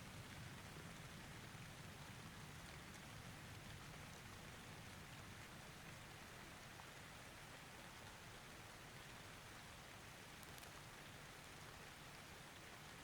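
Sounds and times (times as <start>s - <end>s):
faint steady rain: 0.0s - 13.0s.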